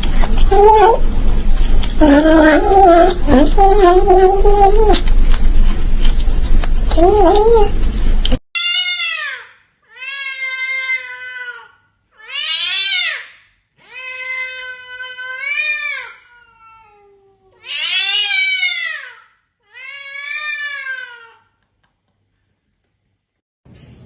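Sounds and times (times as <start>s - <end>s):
cat meowing loudly: 8.6s - 21.4s.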